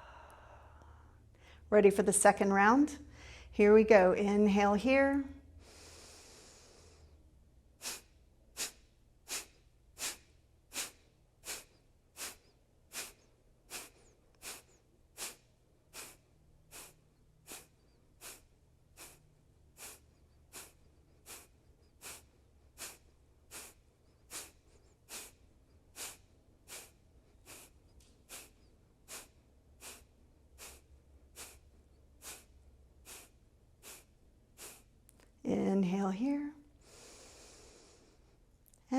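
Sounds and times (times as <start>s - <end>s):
forceful exhales through nose: 5.6s - 7.2s, 7.8s - 34.9s.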